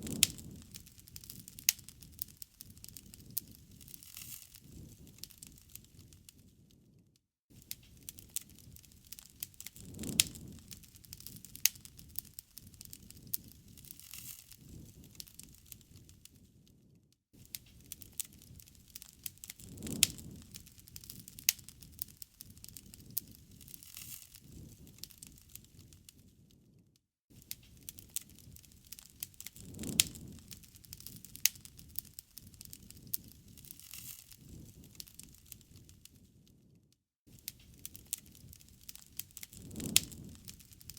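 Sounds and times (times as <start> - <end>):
low rumble of flames: 0.0 - 40.9
wood fire crackling and popping: 0.0 - 40.9.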